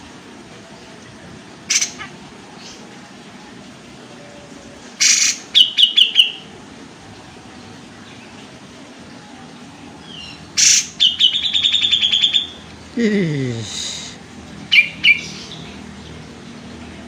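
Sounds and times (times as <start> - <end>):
bulbul calling: 1.7 - 2.8, 5.0 - 6.5, 10.1 - 12.6, 14.7 - 15.8.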